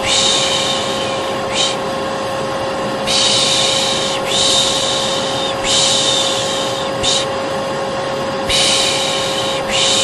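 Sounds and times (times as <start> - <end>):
person shushing: 0.0 - 1.8, 3.1 - 7.4, 8.5 - 10.0
vacuum cleaner motor running: 0.0 - 10.0.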